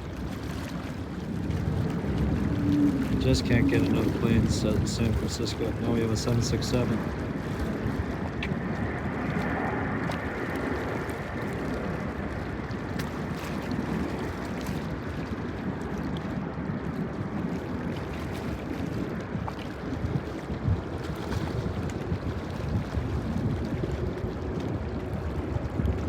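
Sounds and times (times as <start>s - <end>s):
wind buffeting microphone: 0.0s - 26.0s
jet engines rumbling: 1.4s - 13.3s.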